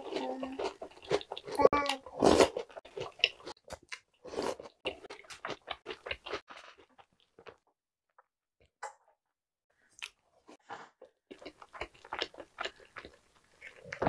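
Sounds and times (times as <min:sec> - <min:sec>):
chewing crunchy cereal: 0:00.0 - 0:07.7, 0:09.9 - 0:14.0.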